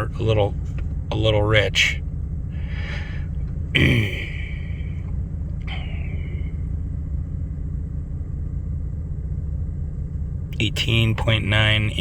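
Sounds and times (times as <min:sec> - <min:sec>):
car engine idling: 0:00.0 - 0:12.0
sigh-like voice sound: 0:03.8 - 0:04.8.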